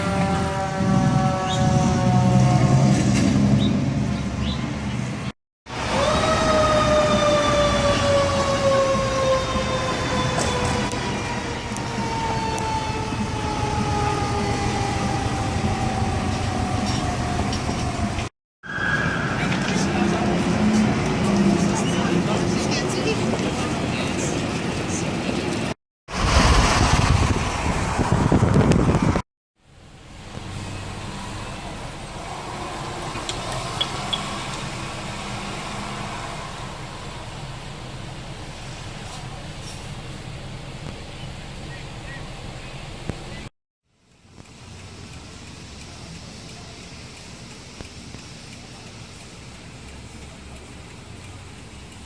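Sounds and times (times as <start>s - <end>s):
fire truck siren: 0.0s - 3.5s, 5.7s - 22.5s
traffic: 0.0s - 52.0s
truck engine rumble: 0.0s - 52.0s.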